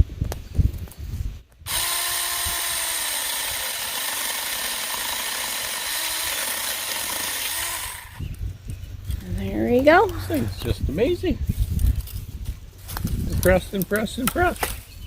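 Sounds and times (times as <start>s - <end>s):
electric chainsaw cutting branch: 1.7s - 8.2s.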